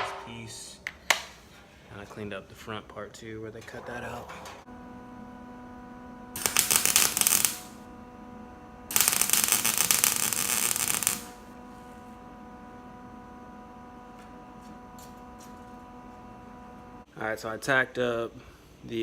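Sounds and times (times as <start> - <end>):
electrical hum: 0.0 - 19.0
welding arc crackling: 6.3 - 7.9, 8.9 - 11.5.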